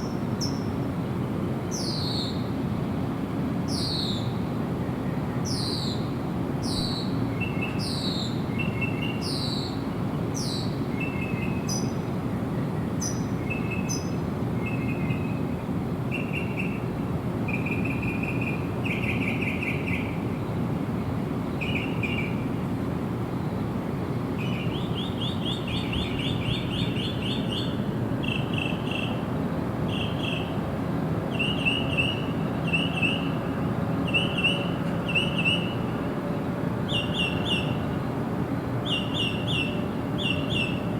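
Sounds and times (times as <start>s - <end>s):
birds whistling: 38.9s - 40.8s.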